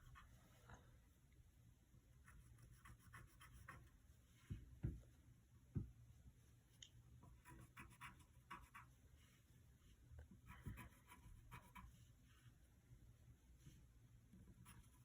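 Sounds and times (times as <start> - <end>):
pen scratching on paper: 7.4 - 8.9, 10.5 - 11.9.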